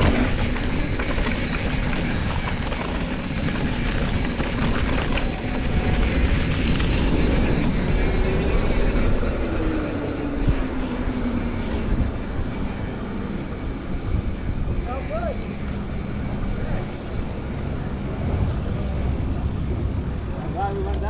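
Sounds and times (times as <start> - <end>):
bike rattling: 0.0 - 21.0
wind rushing over microphone: 0.0 - 21.0.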